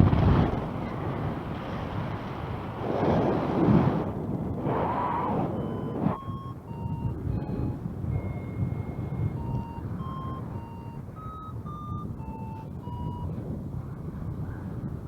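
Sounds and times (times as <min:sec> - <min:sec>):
wind buffeting microphone: 0:00.0 - 0:15.0
variometer beeping: 0:04.8 - 0:13.6.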